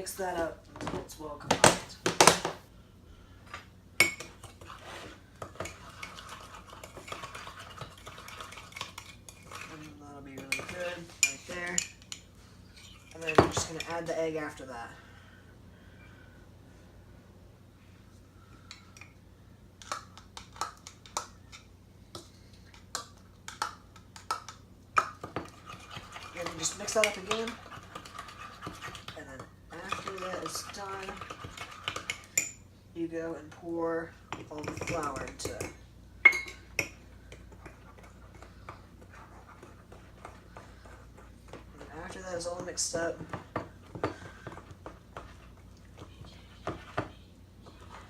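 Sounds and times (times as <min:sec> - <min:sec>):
spoon scraping and tapping: 0:04.0 - 0:14.0, 0:19.8 - 0:32.6, 0:34.3 - 0:48.0
spoon clinking against cup: 0:36.2 - 0:36.9.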